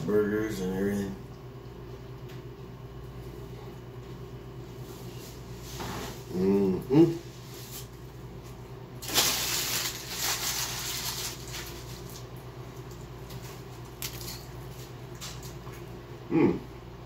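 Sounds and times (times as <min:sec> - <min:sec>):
steady low hum: 0:00.0 - 0:17.0
rustling noise: 0:07.3 - 0:12.3.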